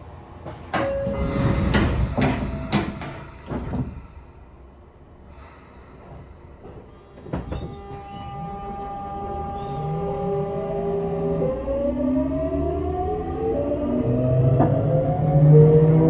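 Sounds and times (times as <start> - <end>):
train inverter whine: 0.0 - 16.0
train doors sliding shut: 0.4 - 4.7, 5.3 - 11.4
clunk: 0.5 - 4.1.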